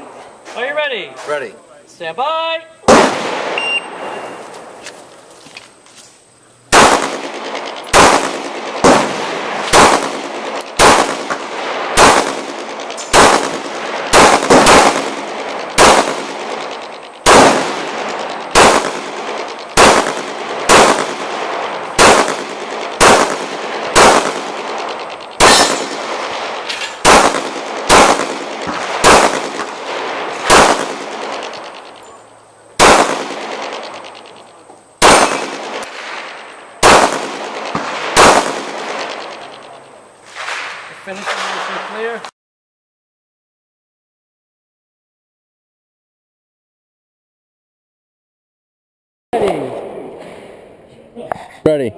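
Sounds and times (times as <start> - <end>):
pistol shots with echo: 2.8 - 4.2, 6.7 - 32.2, 32.8 - 34.4, 35.0 - 42.1.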